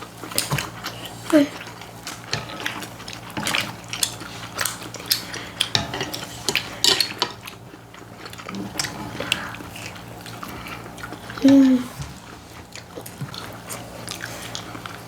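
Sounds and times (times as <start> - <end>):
cutlery clinking on plates: 5.1 - 7.5.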